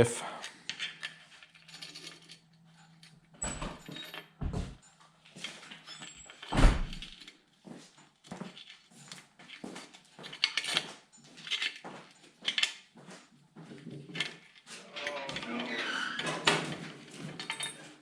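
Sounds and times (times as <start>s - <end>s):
metallic scrapes and clinks: 0.5s - 4.3s, 5.2s - 7.3s, 14.2s - 16.5s, 17.1s - 18.0s.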